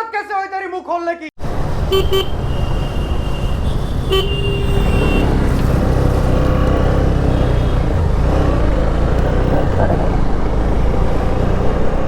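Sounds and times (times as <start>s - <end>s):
road and traffic noise: 1.4s - 12.0s
wind and engine rumble: 1.4s - 12.0s
vehicle horn honking: 1.9s - 5.5s.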